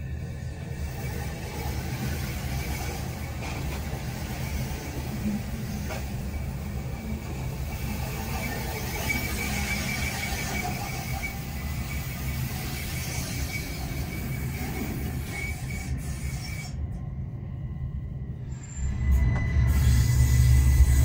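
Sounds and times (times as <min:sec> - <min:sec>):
high wheel squeal: 0:01.6 - 0:17.0, 0:18.4 - 0:21.0
train wheels rumbling past: 0:18.5 - 0:21.0.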